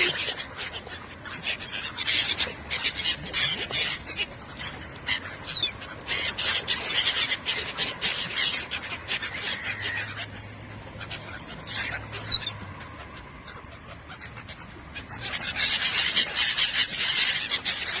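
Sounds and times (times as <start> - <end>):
birds calling and scrabbling: 0.0 - 18.0.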